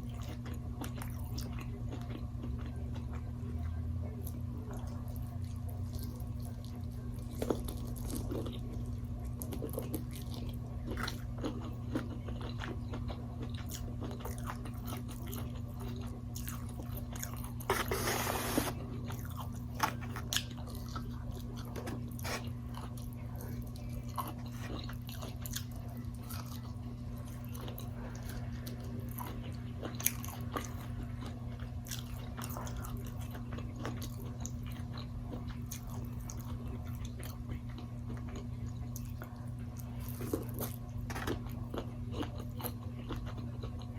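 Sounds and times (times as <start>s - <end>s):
chewing crunchy food: 0.0s - 43.9s.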